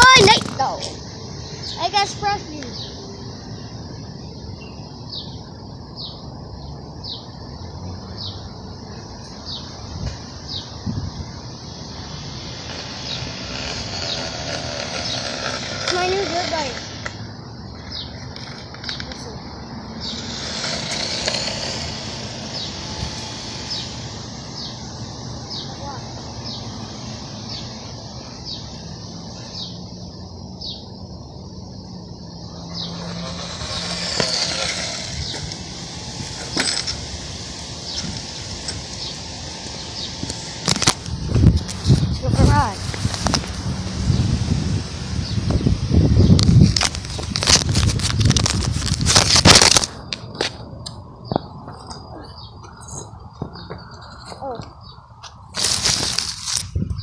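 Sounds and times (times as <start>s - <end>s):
bird chirping: 0.0s - 21.3s, 22.4s - 40.6s, 50.6s - 55.5s
bird calling: 51.2s - 55.4s.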